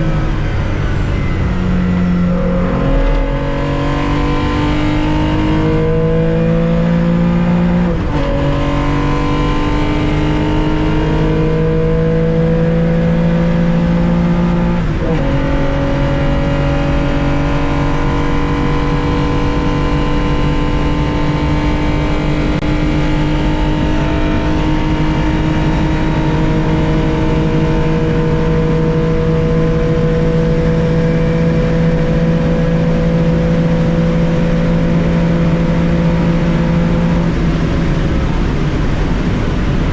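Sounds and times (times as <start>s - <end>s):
car engine at full throttle: 0.0s - 39.9s.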